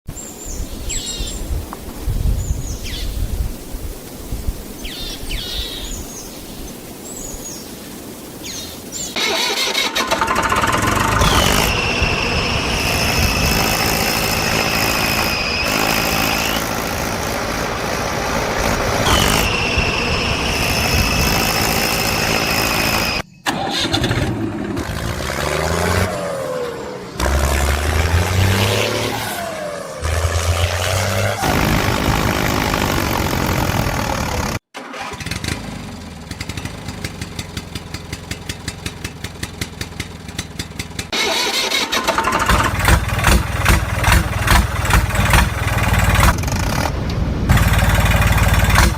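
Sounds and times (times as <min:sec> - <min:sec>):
birds chirping: 0:00.1 - 0:01.6, 0:02.2 - 0:03.5, 0:04.6 - 0:09.5
loud motor with high whine: 0:10.7 - 0:23.2, 0:24.2 - 0:34.6.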